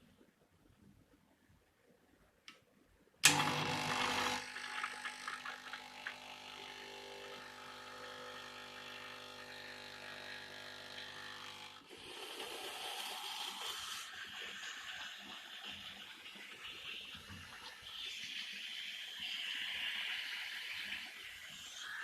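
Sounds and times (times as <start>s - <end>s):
vibratory pump buzzing: 3.2s - 11.9s.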